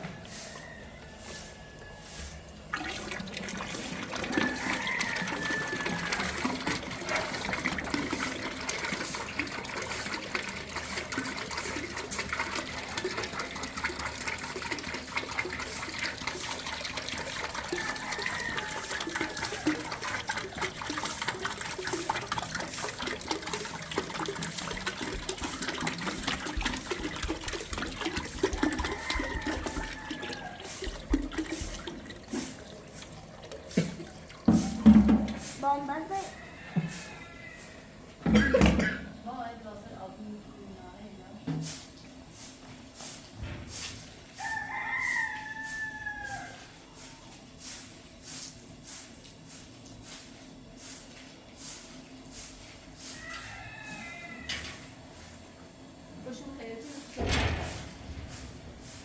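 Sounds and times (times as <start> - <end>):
water running and splashing: 2.4 - 37.2.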